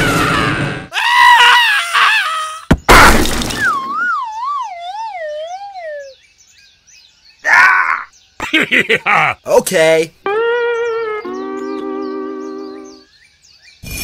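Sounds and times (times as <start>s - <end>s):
cartoon crash: 0.0s - 0.9s, 2.7s - 5.1s.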